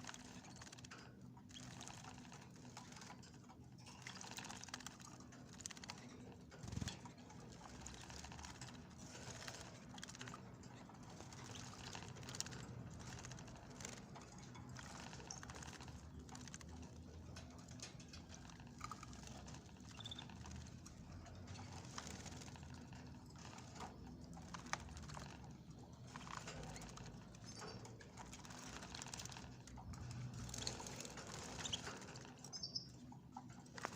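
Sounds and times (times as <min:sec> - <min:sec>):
birds splashing water: 0:07.5 - 0:22.7, 0:27.7 - 0:29.4
bird chirps: 0:19.9 - 0:20.4, 0:32.5 - 0:33.0.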